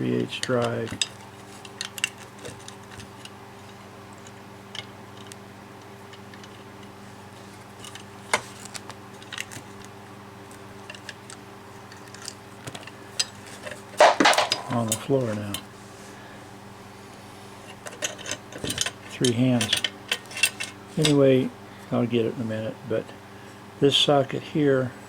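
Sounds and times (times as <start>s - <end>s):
steady low hum: 0.0s - 25.0s
metal tools clinking: 13.2s - 15.6s, 17.8s - 21.2s.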